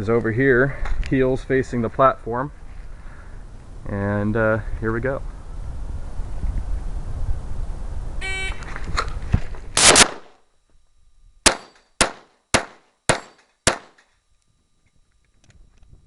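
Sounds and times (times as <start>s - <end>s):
shot timer beep: 8.2s - 8.6s
pistol shots: 9.8s - 10.3s, 11.4s - 14.0s.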